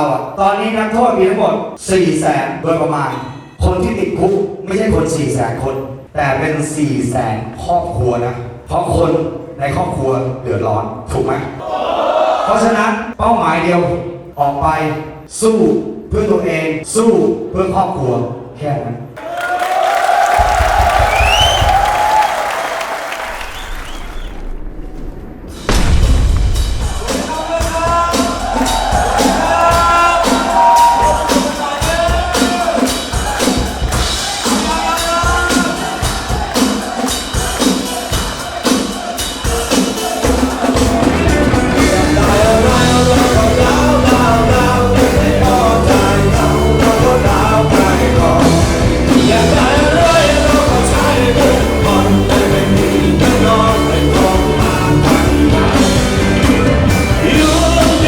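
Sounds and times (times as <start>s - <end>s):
rock band drums and bass: 20.4s - 22.1s, 23.5s - 58.0s
person singing: 34.4s - 58.0s.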